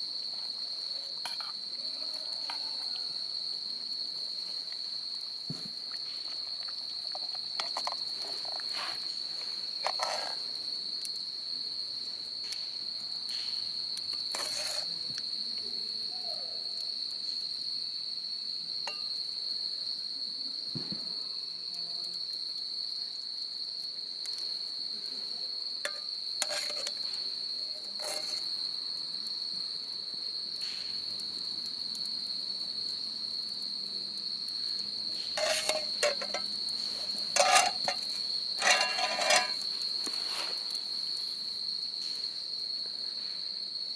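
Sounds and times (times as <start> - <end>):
crickets chirring: 0.0 - 43.9.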